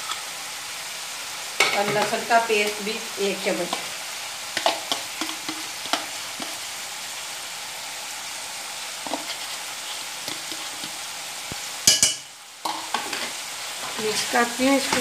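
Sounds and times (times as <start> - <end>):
food sizzling in oil: 0.0 - 15.0
spoon clinking on metal pan: 11.8 - 13.1.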